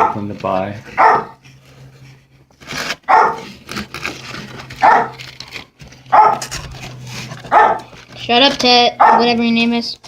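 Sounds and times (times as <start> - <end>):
dog barking: 0.0 - 0.2, 0.9 - 1.4, 3.1 - 3.5, 4.8 - 5.2, 6.1 - 6.5, 7.5 - 7.9, 9.0 - 9.4.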